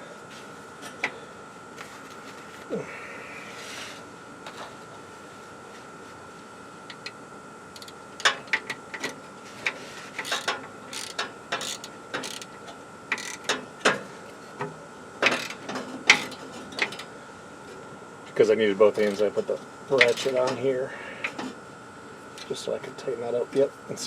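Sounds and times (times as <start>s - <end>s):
hand ratchet clicking: 7.8s - 9.1s, 10.2s - 12.5s, 13.1s - 13.6s, 15.3s - 17.0s, 20.0s - 20.4s.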